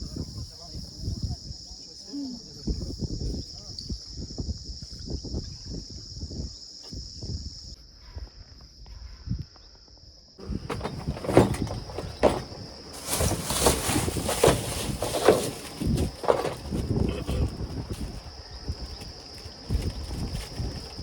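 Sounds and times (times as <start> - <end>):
insects buzzing: 0.0 - 21.0
rustling and knocking: 10.4 - 21.0.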